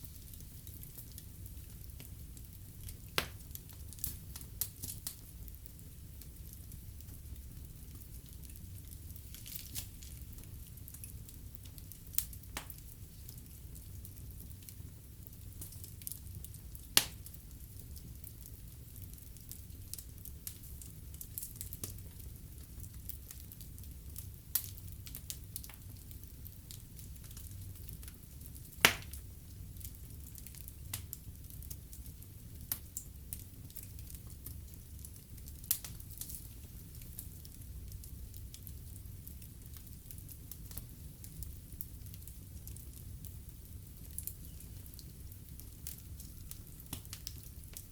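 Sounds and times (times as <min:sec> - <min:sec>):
wood fire crackling: 0:00.0 - 0:47.9
sharp pops of fire: 0:02.9 - 0:05.2, 0:09.2 - 0:12.9, 0:16.9 - 0:17.4, 0:28.7 - 0:29.2, 0:44.0 - 0:47.9.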